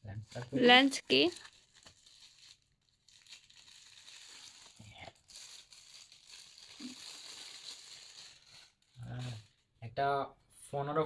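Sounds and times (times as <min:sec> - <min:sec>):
plastic packaging crinkling: 0:00.1 - 0:09.7.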